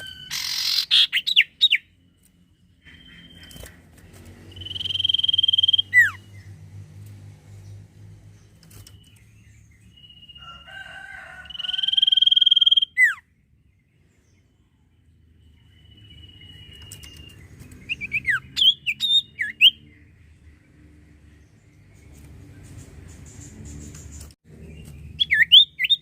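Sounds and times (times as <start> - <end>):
bird whistling song: 0.0 - 1.9, 4.5 - 6.5, 11.5 - 13.2, 15.6 - 19.9, 24.7 - 26.0.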